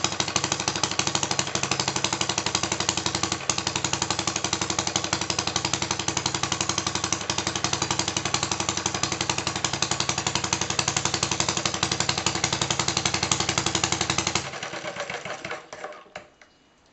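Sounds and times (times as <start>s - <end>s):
stationary engine running: 0.0s - 15.6s.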